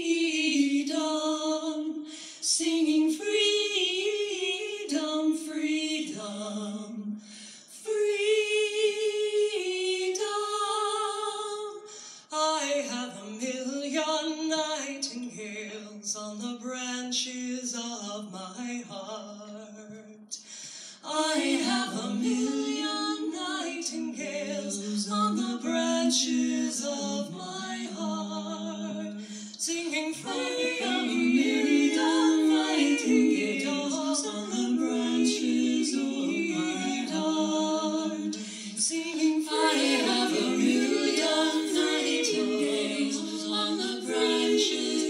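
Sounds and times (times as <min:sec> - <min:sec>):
women singing in harmony: 0:00.0 - 0:07.1, 0:07.7 - 0:11.9, 0:21.0 - 0:45.0.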